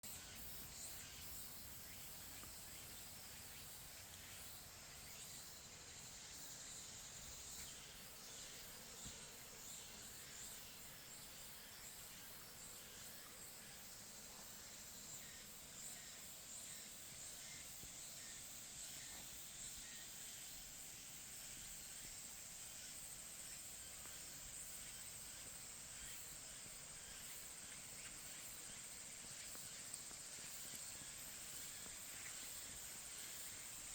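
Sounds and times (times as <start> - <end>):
high insect trill: 0.0 - 33.9
soft hiss: 0.0 - 33.9
faint ticks: 23.8 - 33.9.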